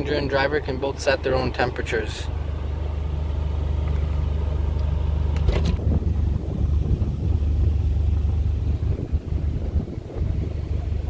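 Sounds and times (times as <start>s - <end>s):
car engine idling: 0.0s - 11.0s
wind buffeting on microphone: 5.5s - 11.0s.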